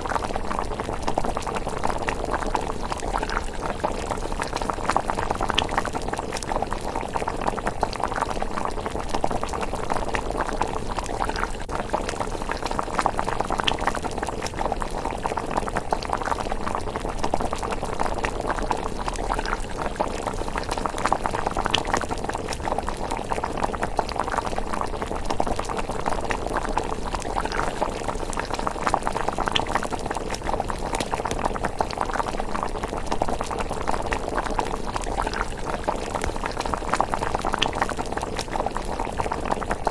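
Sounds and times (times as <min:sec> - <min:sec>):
porridge bubbling in a pot: 0:00.0 - 0:39.9.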